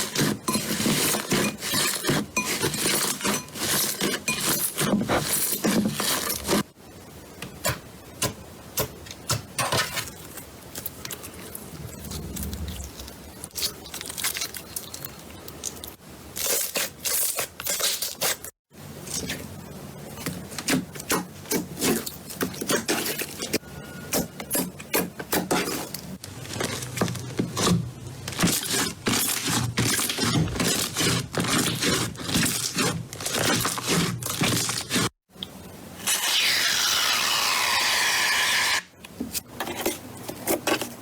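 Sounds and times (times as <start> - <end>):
slime rubbing and crackling: 10.0 - 18.5, 24.5 - 35.2.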